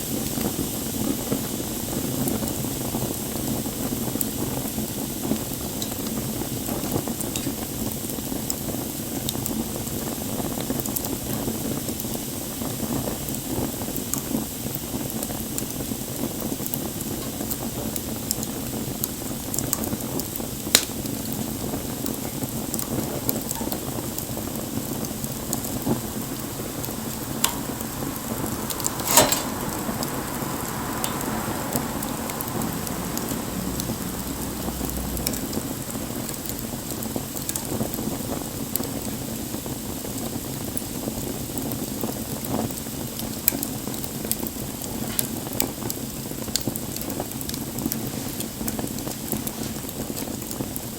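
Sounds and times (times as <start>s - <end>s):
campfire hissing and crackling: 0.0s - 50.9s
loud fire pops: 0.1s - 34.0s.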